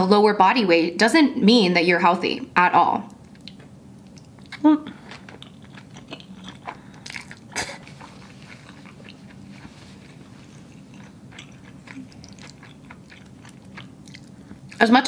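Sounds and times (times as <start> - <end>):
person chewing spaghetti: 3.2 - 15.0.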